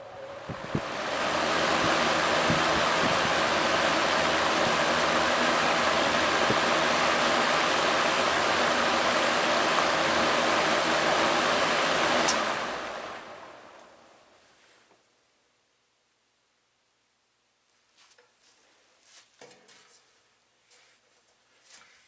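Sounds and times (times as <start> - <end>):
box fan air rushing: 0.0 - 13.8
faint motor hum: 0.0 - 14.4
fan switch click: 12.2 - 12.5.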